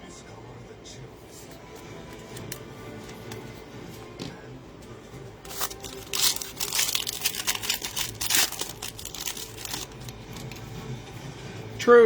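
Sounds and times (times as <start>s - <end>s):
plastic wrappers crinkling and tearing: 5.5s - 10.7s.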